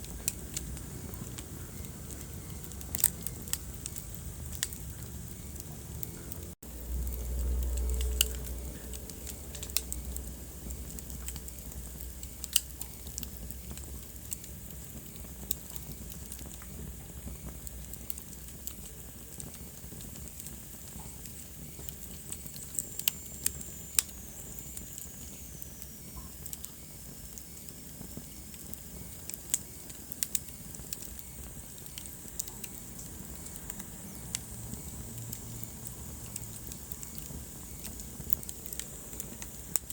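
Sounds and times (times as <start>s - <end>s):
low rumble: 0.0s - 12.2s
wood fire crackling: 0.0s - 39.9s.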